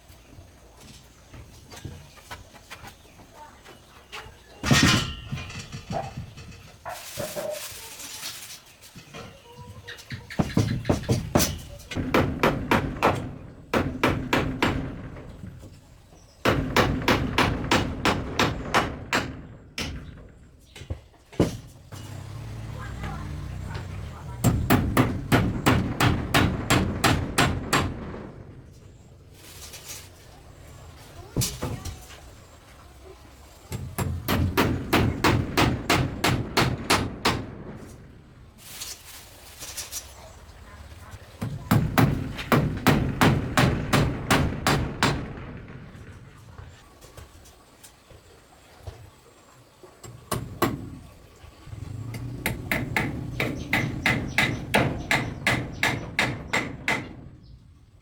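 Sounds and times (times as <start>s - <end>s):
rapid hard knocks: 24.4s - 28.4s, 41.4s - 46.0s.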